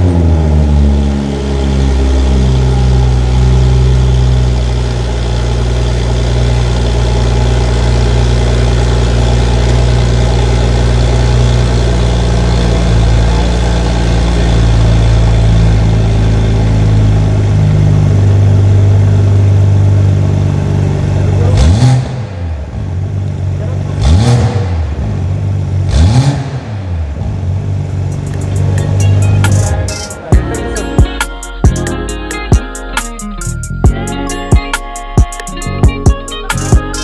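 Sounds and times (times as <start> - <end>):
car engine rev flare and idle: 0.0 - 37.0.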